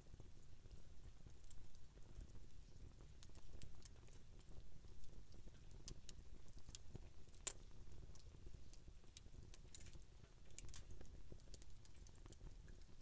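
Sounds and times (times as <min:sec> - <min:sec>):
campfire crackling: 0:02.9 - 0:13.0.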